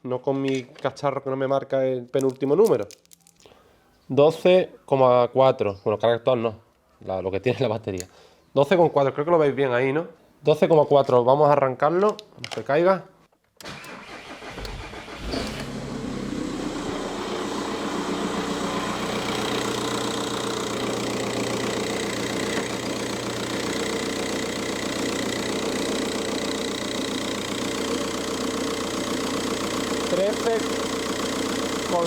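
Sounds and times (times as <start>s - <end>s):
car starter cranking: 13.6s - 32.0s.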